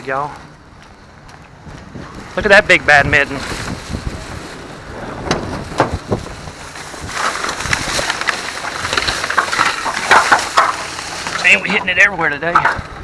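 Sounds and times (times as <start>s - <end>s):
plastic bag rustling: 2.2s - 12.1s.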